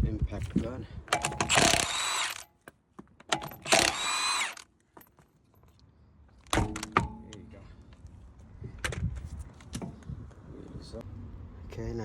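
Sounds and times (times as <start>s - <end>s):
impact gun whirring: 1.1s - 2.5s, 3.4s - 4.7s.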